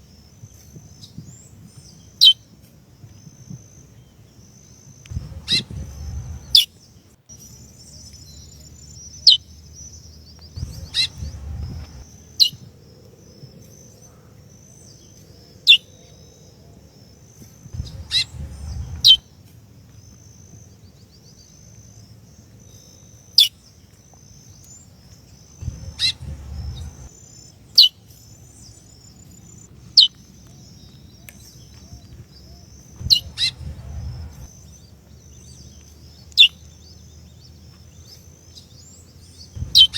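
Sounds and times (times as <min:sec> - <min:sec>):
low rumble: 0:05.1 - 0:06.6, 0:10.5 - 0:12.4, 0:17.7 - 0:19.2, 0:25.6 - 0:27.2, 0:33.0 - 0:34.6, 0:39.6 - 0:39.9.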